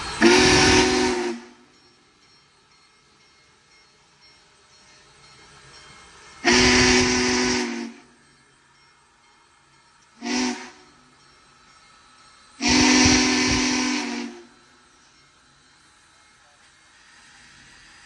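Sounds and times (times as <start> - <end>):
steam whistle chord blasts: 0.0 - 2.0, 6.4 - 8.3, 10.2 - 11.2, 12.6 - 15.2.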